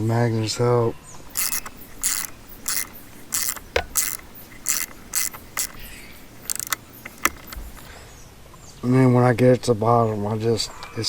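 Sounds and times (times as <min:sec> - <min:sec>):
metal hand tool scraping and clicking: 0:01.3 - 0:07.9.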